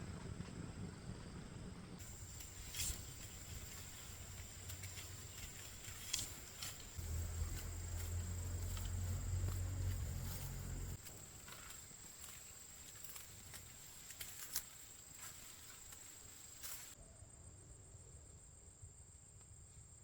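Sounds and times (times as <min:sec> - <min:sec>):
low rumble: 0:00.0 - 0:11.0
insects chirring: 0:02.0 - 0:17.0
light clicks and rustles: 0:02.0 - 0:17.0.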